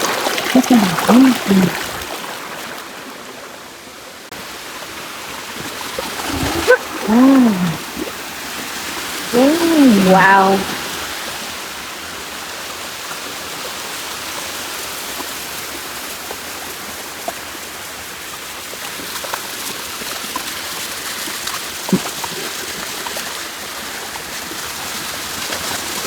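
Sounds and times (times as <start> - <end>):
waterfall rushing: 9.3 - 11.0.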